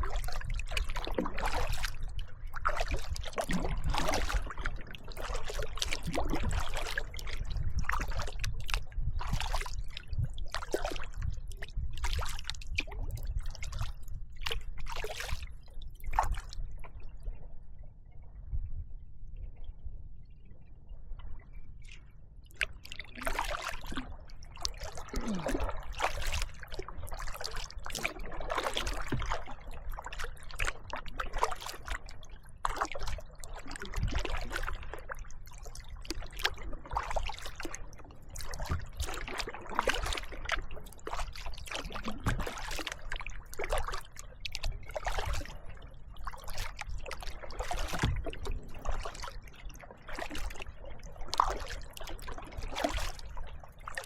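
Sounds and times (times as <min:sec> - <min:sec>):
paddle splashing in water: 0:00.0 - 0:17.2, 0:21.2 - 0:54.0.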